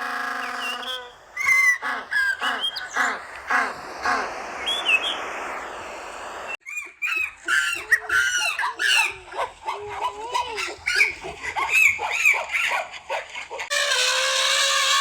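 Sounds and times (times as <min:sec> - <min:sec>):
birds chirping: 0:00.0 - 0:12.8
steady hiss: 0:00.1 - 0:06.6.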